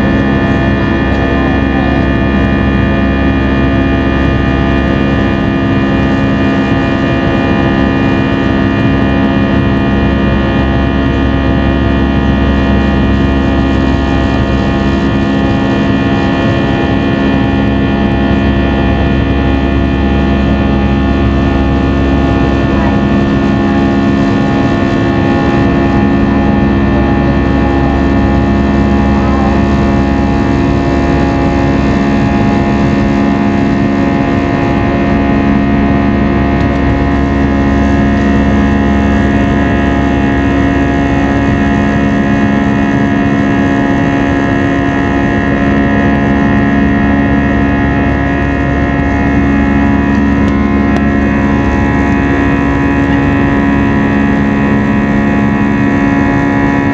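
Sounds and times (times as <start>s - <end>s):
jet engine cabin drone: 0.0s - 56.9s.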